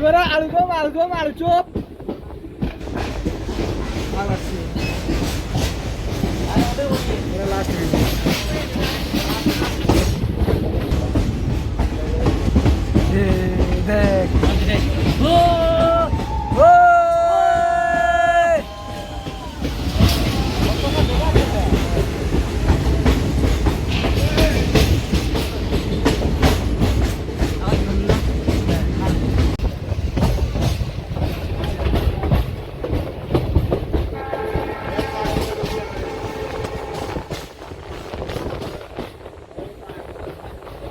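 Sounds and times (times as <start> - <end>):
train rumbling: 0.0 - 40.9
wheels clattering on rails: 0.0 - 40.9
train horn: 34.1 - 37.5.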